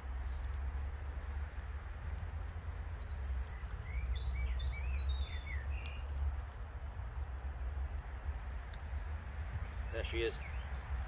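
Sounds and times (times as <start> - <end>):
songbird chirping: 0.0 - 0.6, 2.4 - 7.7, 8.7 - 11.0.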